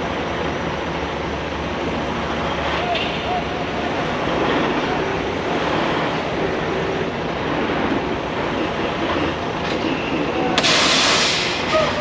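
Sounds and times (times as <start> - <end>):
high-pressure water spray hissing: 10.6 - 11.8.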